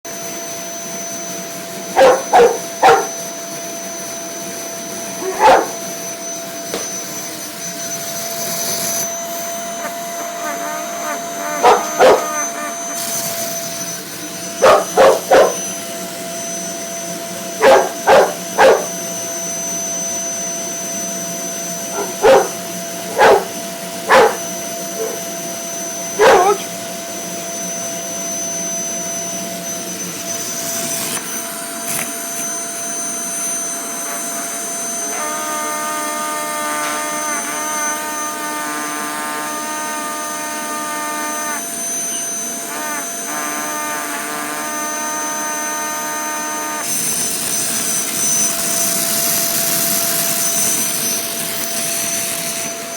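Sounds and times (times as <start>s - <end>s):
vacuum cleaner humming: 0.1s - 52.9s
dog barking: 1.9s - 3.2s, 5.2s - 5.9s, 9.8s - 13.0s, 14.6s - 15.6s, 17.6s - 19.0s, 21.9s - 25.3s, 26.1s - 26.7s.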